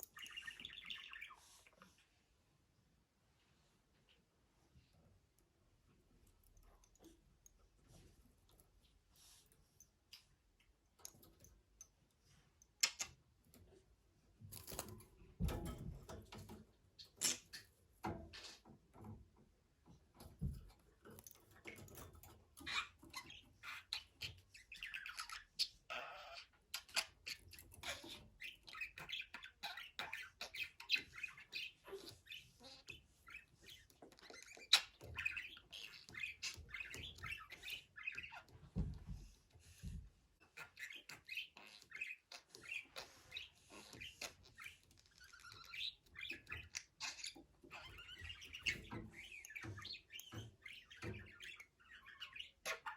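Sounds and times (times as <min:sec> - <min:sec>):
budgerigar chirping and chattering: 0:22.6 - 0:38.5, 0:40.5 - 0:52.9.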